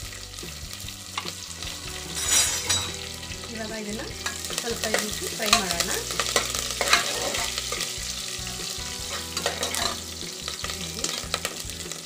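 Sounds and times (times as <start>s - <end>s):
spices sizzling in hot oil: 0.0s - 12.0s
metal ladle scraping pot: 1.2s - 3.4s, 4.1s - 8.0s, 9.0s - 10.7s.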